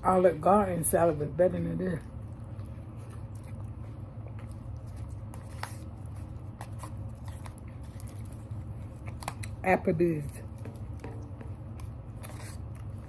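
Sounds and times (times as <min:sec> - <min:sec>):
steady low hum: 0:00.0 - 0:13.0
person chewing salad: 0:02.2 - 0:09.5.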